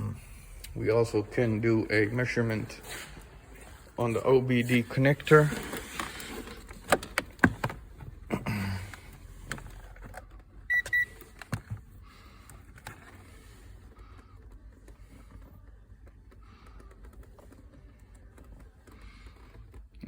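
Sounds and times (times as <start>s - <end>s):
multimeter double beep: 10.7s - 11.1s.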